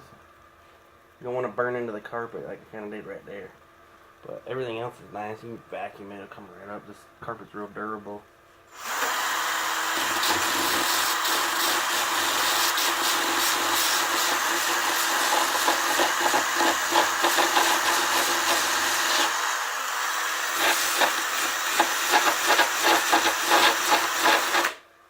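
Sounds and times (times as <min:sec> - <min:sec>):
drill bit scraping foam: 0:08.7 - 0:24.8
power drill whining: 0:08.7 - 0:24.8.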